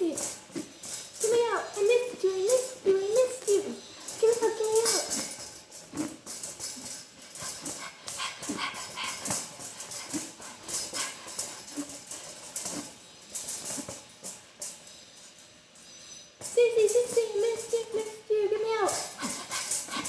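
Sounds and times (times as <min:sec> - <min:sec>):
claws scratching a cage: 0:00.0 - 0:15.1, 0:16.8 - 0:20.0.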